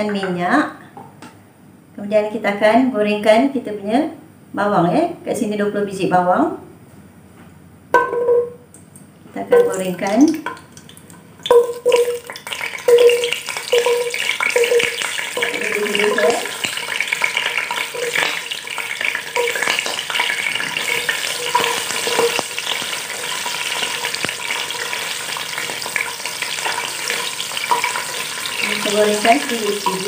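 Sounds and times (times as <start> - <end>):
knocks in metal pot: 8.0 - 8.6, 11.4 - 15.5
shallots sizzling in hot oil: 9.5 - 30.0
spatula stirring in pot: 11.4 - 30.0.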